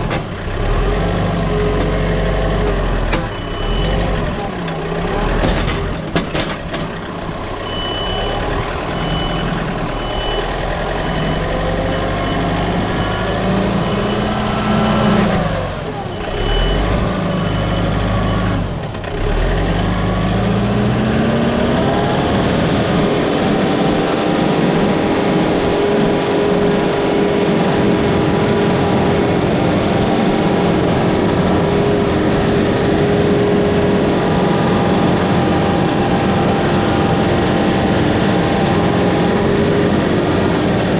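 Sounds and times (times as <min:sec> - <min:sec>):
heavy machinery engine revving: 0:00.0 - 0:40.9.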